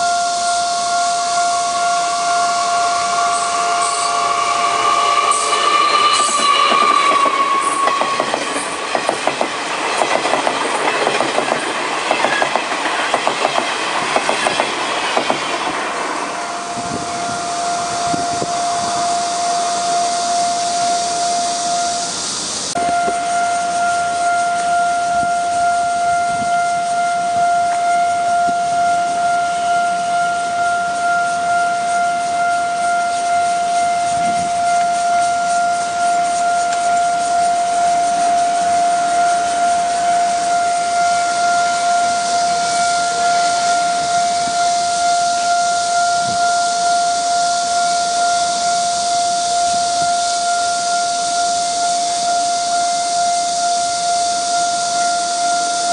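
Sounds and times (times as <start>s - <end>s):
level crossing warning tone: 0.0s - 55.9s
train wheels clattering over rail joints: 5.7s - 16.0s.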